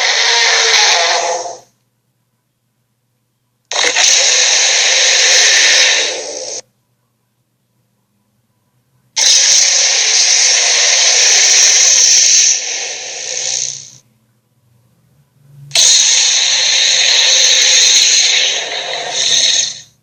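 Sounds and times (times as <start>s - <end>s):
harsh hissing creature blasts: 0.0s - 1.7s, 3.7s - 6.6s, 9.2s - 14.0s, 15.7s - 20.0s.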